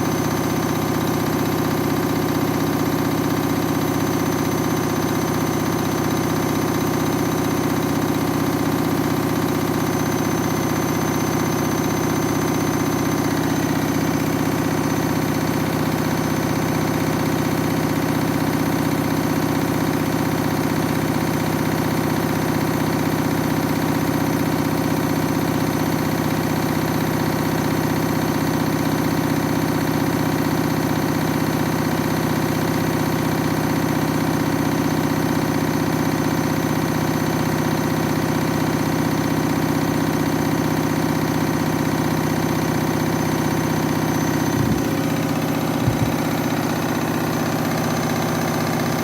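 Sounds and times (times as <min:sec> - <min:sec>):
washing machine spinning: 0:00.0 - 0:49.0
washing machine shaking: 0:43.6 - 0:49.0.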